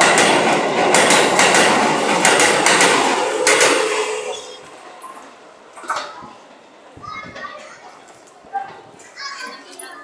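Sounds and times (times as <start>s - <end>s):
wheels clacking over rail joints: 0.0s - 6.3s
electric train rolling past: 0.0s - 7.0s.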